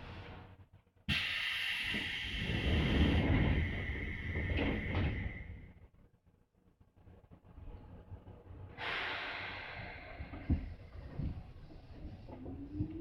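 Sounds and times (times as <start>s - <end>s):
compressed air hiss: 1.1s - 5.5s, 8.8s - 10.4s.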